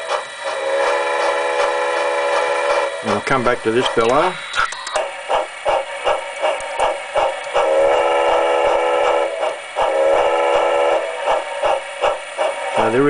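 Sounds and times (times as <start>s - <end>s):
steam whistle blasts: 0.0s - 3.3s, 7.6s - 11.2s
steam locomotive chuffing: 0.0s - 13.0s.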